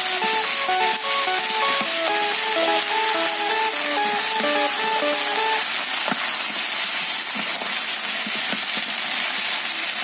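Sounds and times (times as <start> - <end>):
background music: 0.0 - 5.8
food sizzling in a pan: 0.0 - 10.0.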